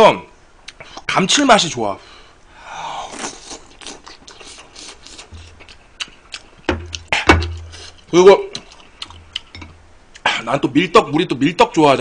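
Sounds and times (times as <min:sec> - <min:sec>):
wet chewing and lip-smacking: 0:03.1 - 0:09.5.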